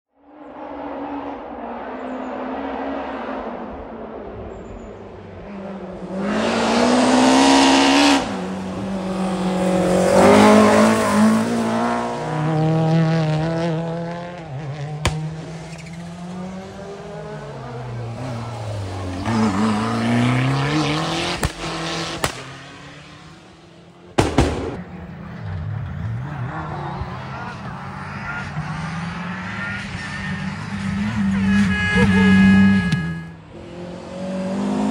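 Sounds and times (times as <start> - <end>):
rally car engines revving: 0.3 - 34.9
sharp cracks: 15.0 - 15.4, 21.4 - 22.5, 24.2 - 25.0.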